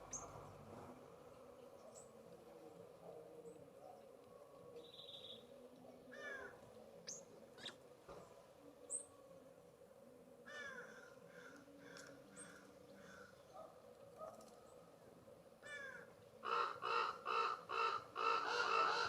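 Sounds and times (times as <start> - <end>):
jay harsh raspy calls: 16.4 - 19.0.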